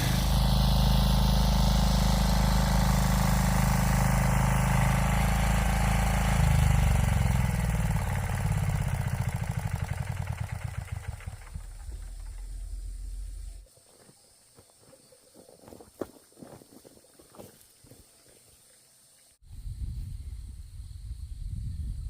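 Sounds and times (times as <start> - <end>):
small engine running: 0.0 - 13.6.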